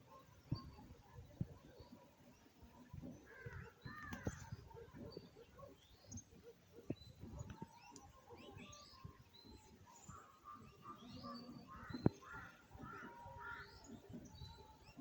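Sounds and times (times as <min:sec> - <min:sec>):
wild birds calling: 0:03.1 - 0:15.0.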